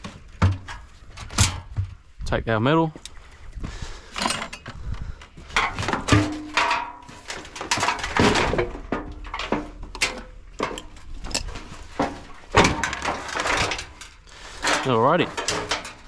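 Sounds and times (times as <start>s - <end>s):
sharp knocks and scrapes: 4.0s - 16.0s.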